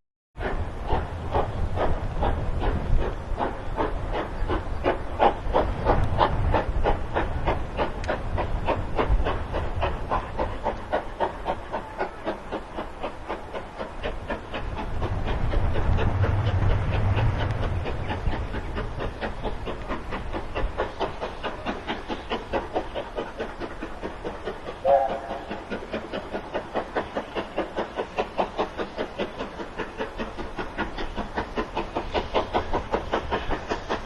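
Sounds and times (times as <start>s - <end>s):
train rumble: 0.4s - 34.0s
wheels clicking over rail joints: 0.4s - 34.0s
train whistle toot: 24.8s - 25.4s.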